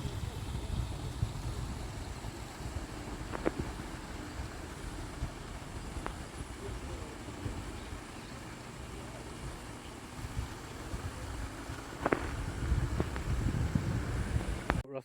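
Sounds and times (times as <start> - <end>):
wind buffeting microphone: 0.0 - 14.8
faint clicks: 2.7 - 13.4.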